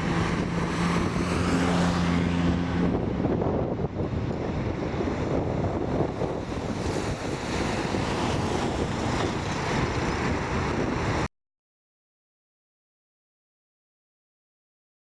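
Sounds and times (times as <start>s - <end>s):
jet engines roaring: 0.0s - 11.3s
wind buffeting microphone: 0.0s - 11.3s.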